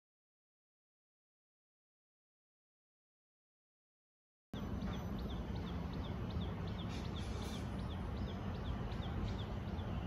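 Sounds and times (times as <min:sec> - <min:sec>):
bird chirping: 0:04.6 - 0:10.0
low outdoor rumble: 0:04.6 - 0:10.0.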